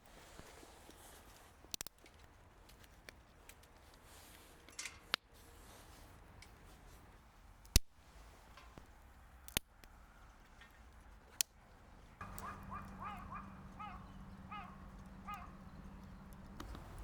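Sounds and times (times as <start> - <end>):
faint background noise: 0.0 - 17.0
sharp clicks: 12.2 - 17.0.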